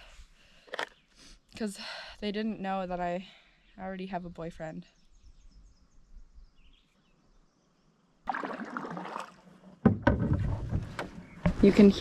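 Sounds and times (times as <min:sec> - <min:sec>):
canoe paddle splashing water: 0:08.3 - 0:11.3.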